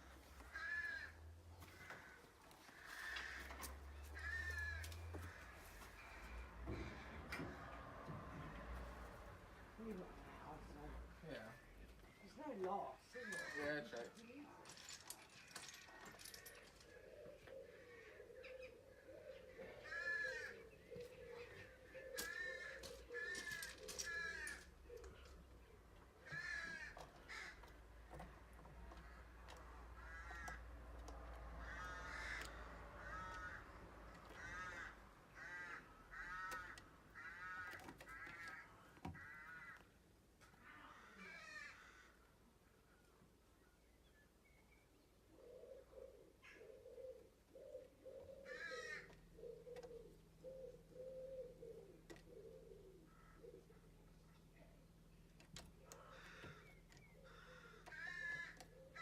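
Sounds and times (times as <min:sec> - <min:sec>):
owl rasping calls: 0:55.8 - 0:59.0.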